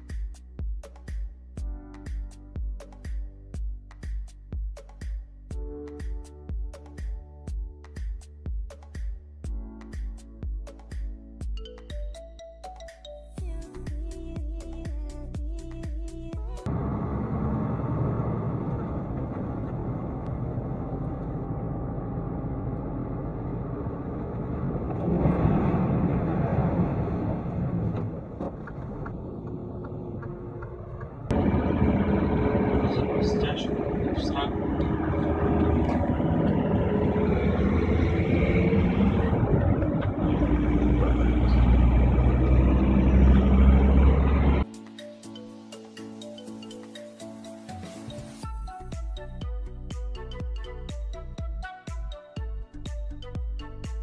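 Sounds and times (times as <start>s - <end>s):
vehicle engine rumble: 13.7s - 44.7s
road noise: 16.7s - 44.7s.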